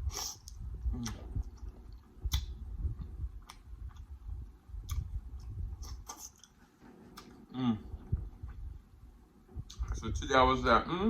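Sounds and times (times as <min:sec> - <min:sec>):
person chewing food: 0:00.1 - 0:04.2, 0:04.8 - 0:07.5.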